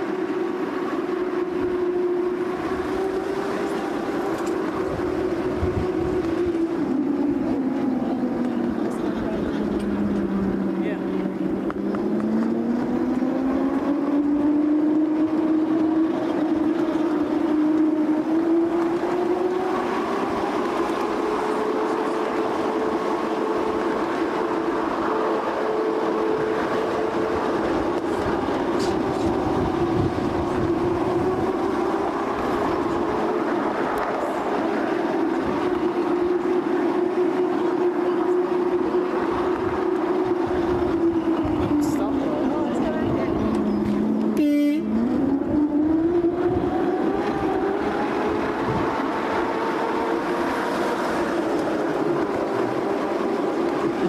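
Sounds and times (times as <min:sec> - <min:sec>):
train running along track: 0:00.0 - 0:54.0.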